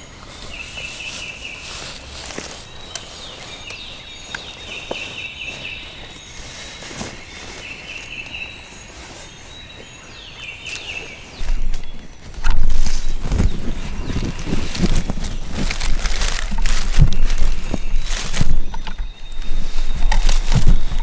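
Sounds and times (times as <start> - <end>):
loud rustle: 0.0 - 3.7, 10.7 - 21.0
footsteps in dry leaves: 0.0 - 21.0.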